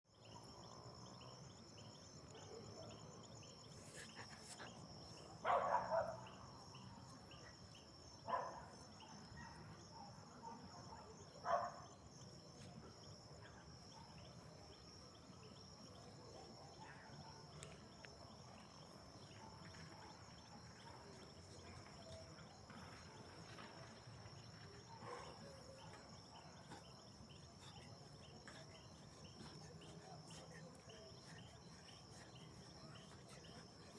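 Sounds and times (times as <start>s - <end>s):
crickets chirping: 0.1s - 33.9s
dog barking: 5.4s - 7.2s, 8.2s - 12.0s, 16.6s - 17.6s, 24.8s - 27.9s.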